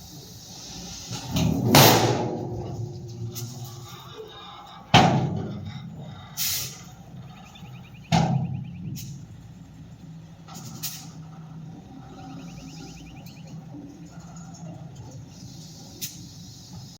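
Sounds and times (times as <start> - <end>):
heavy bangs of truck unloading: 0.0 - 16.9
low engine hum: 0.0 - 16.9
light clatters: 8.0 - 12.3.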